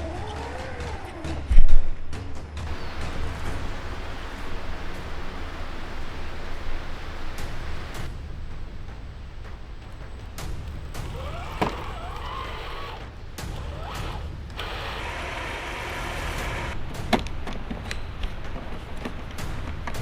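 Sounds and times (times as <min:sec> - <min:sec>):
electric motor and gears whining: 0:02.7 - 0:17.4.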